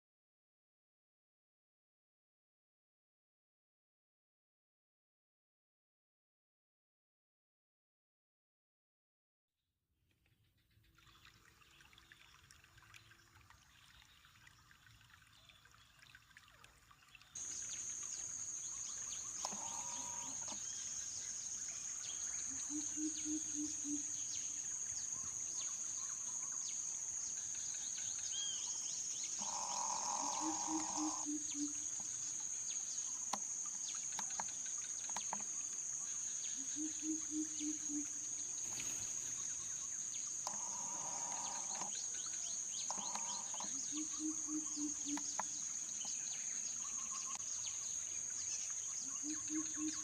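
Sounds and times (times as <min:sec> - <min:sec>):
high insect drone: 0:17.4 - 0:50.0
low rapid hooting pulses: 0:29.4 - 0:31.8.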